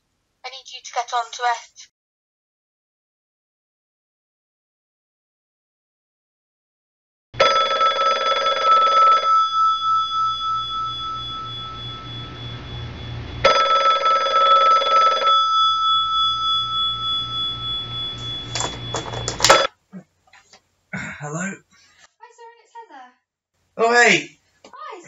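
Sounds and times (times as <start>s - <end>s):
telephone bell ringing: 7.4s - 12.6s, 13.4s - 19.7s.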